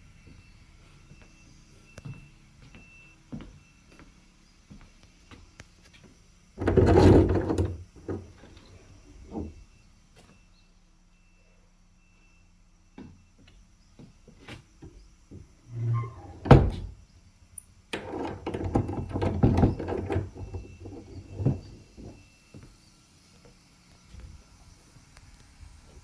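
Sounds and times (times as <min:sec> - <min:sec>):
clattering knocks: 0:06.6 - 0:08.5.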